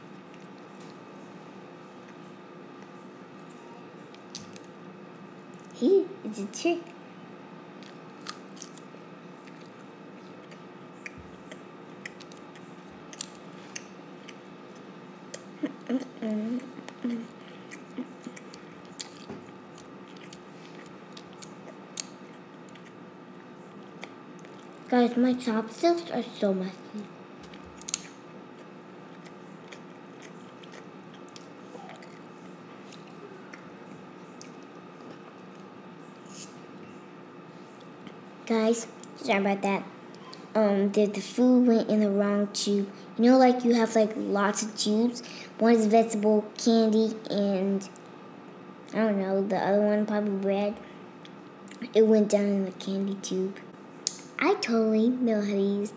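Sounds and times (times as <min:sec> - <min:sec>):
steady background hum: 0:00.0 - 0:55.9
child chewing food: 0:07.8 - 0:24.9, 0:27.4 - 0:36.8
wet mouth clicks: 0:54.0 - 0:54.3.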